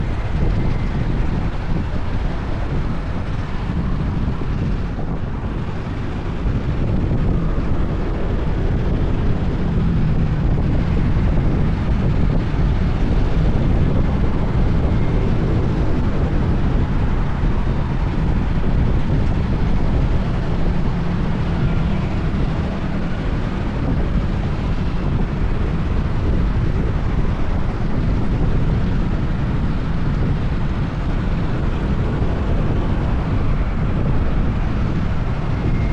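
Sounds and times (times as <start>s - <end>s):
tyres on asphalt: 0.0s - 35.9s
wind buffeting microphone: 0.0s - 35.9s.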